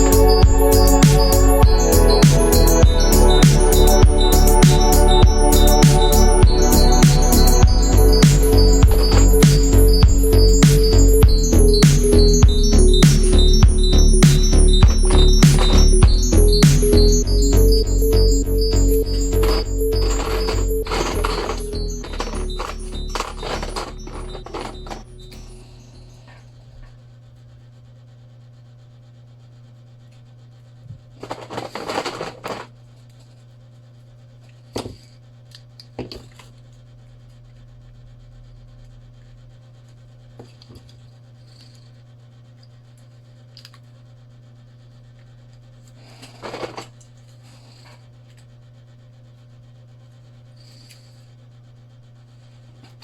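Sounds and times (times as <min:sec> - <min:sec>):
steady low hum: 0:00.0 - 0:53.0
small tools scraping and rubbing: 0:14.2 - 0:16.0, 0:19.0 - 0:26.4, 0:31.2 - 0:33.4, 0:40.4 - 0:42.0, 0:45.8 - 0:48.5, 0:50.5 - 0:51.4.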